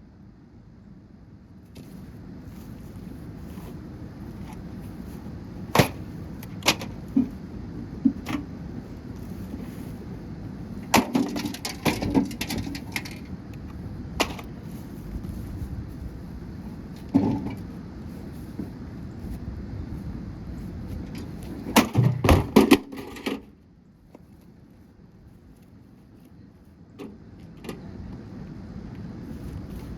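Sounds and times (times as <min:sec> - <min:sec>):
microwave oven being smashed: 0:05.7 - 0:07.0, 0:10.9 - 0:13.1, 0:21.7 - 0:23.4.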